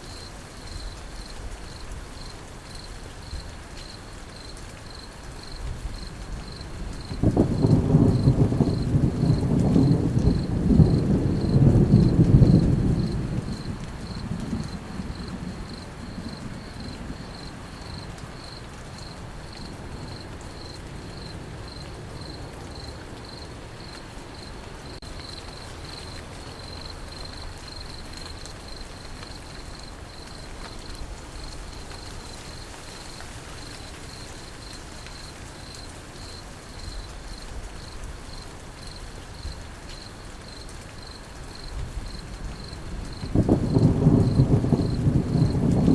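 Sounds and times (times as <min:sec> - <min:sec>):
crickets chirping: 0:00.0 - 0:45.9
rain: 0:00.0 - 0:45.9
thunder rumble: 0:05.6 - 0:22.5, 0:41.6 - 0:45.9.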